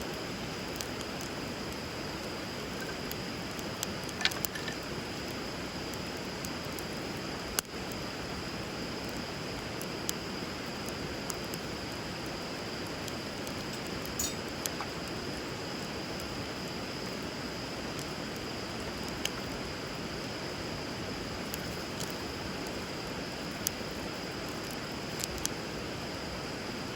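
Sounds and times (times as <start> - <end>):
wood fire crackling and popping: 0.1 - 26.2.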